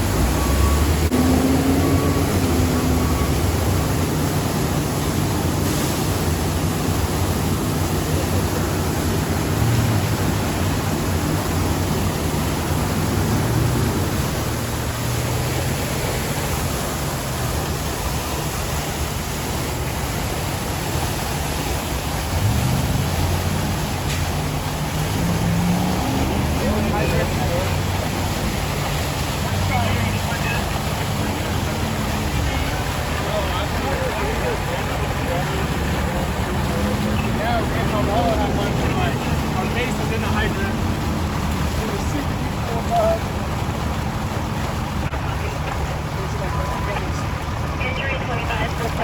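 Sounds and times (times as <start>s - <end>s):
steady rushing noise: 0.0s - 49.0s
vehicle engines humming: 0.0s - 49.0s.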